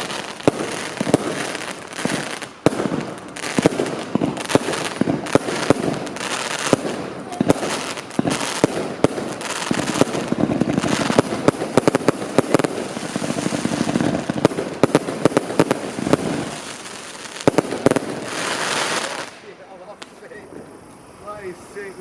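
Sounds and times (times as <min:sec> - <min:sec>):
fireworks bangs: 0:00.0 - 0:20.8
fireworks crackling hiss: 0:00.0 - 0:22.0.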